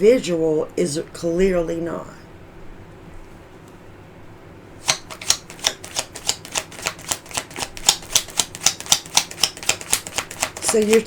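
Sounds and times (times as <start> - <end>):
cards being shuffled by hand: 4.8 - 11.0.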